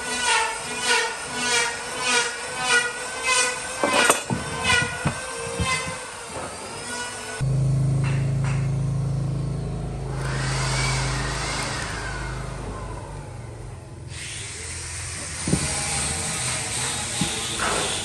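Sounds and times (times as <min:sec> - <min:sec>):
cutting tool squealing on wood: 0:00.1 - 0:06.1, 0:14.1 - 0:18.0
machine low hum: 0:07.4 - 0:14.1.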